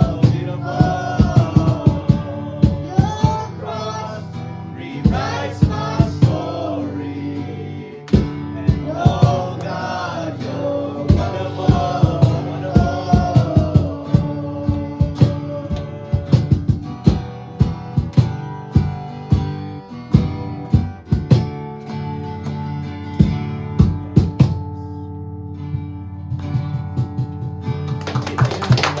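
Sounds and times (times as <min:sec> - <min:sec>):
drum hits: 0:00.0 - 0:03.5, 0:05.1 - 0:06.6, 0:08.1 - 0:09.6, 0:11.1 - 0:19.6, 0:20.2 - 0:21.6, 0:23.2 - 0:24.6
guitar: 0:00.0 - 0:29.0.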